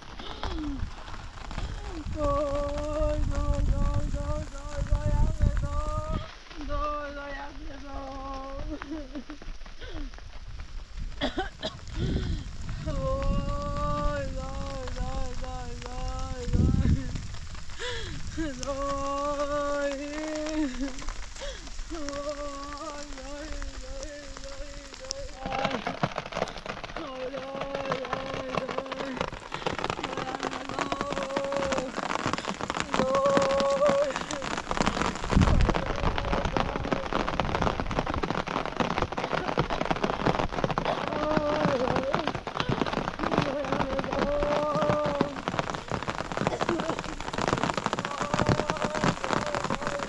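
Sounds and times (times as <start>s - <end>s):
rain falling: 0.0s - 50.0s
sharp raindrop hits: 0.0s - 50.0s
person singing long held notes: 1.8s - 9.2s, 12.8s - 17.2s, 18.2s - 26.3s, 26.9s - 37.6s, 40.8s - 50.0s.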